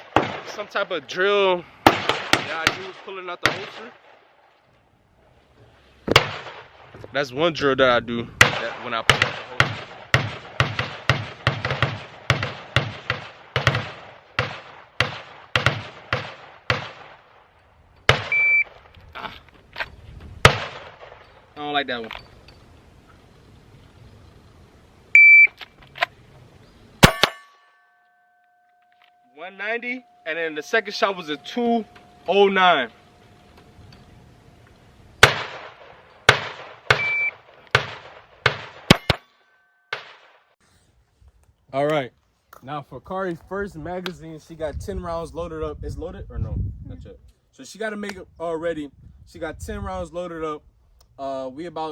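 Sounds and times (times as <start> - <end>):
rapid gunshots: 0.0 - 0.8, 1.8 - 4.2, 6.1 - 6.8, 8.4 - 17.3, 35.2 - 39.2, 39.9 - 40.4
short high beep: 18.3 - 18.7, 25.2 - 25.5, 37.0 - 37.4.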